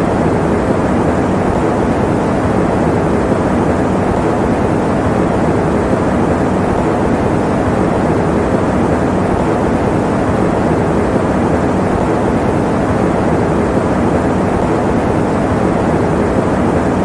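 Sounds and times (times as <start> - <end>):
electric fan running: 0.0 - 17.0.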